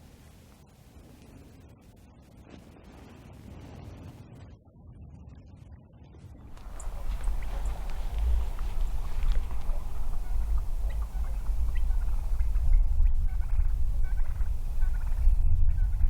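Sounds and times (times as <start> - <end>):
uneven low rumble: 6.4 - 16.0
faint turkey calls: 6.5 - 16.0.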